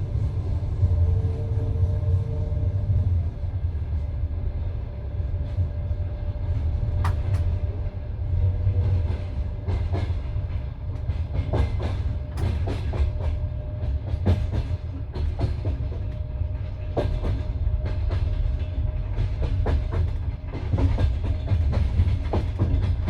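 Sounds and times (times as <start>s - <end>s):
train wheels rumbling: 0.0s - 23.0s
wheels clacking over rail joints: 9.0s - 23.0s.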